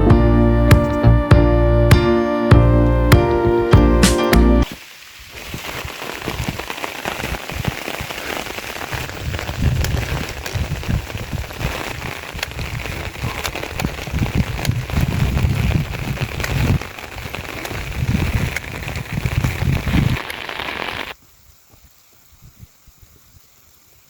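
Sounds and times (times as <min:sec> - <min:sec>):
low rumbles: 0:00.0 - 0:04.6
background music: 0:00.0 - 0:04.7
rain pattering: 0:01.9 - 0:21.2.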